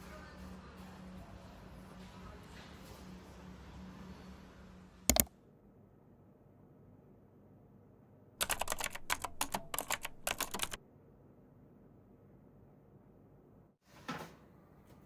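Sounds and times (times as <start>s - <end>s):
rapid clicks: 8.4s - 10.8s.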